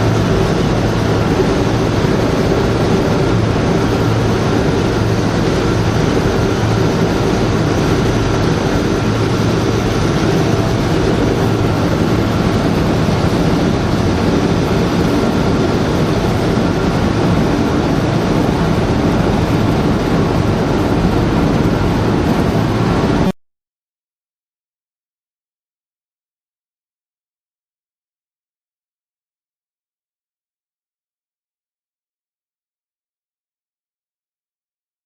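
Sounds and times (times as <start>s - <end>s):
heavy mining machinery din: 0.0s - 23.3s.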